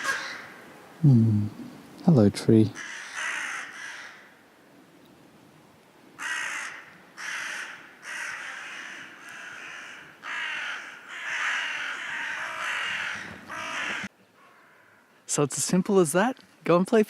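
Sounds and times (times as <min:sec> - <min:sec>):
crows cawing: 0:00.0 - 0:00.6, 0:02.8 - 0:04.4, 0:06.2 - 0:15.2.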